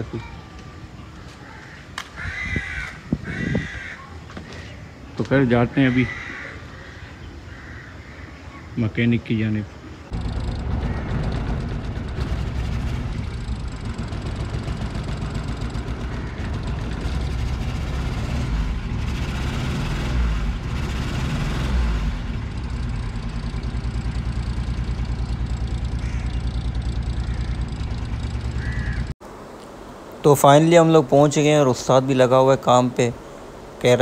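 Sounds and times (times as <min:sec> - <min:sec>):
car engine rumbling: 0:09.9 - 0:29.2.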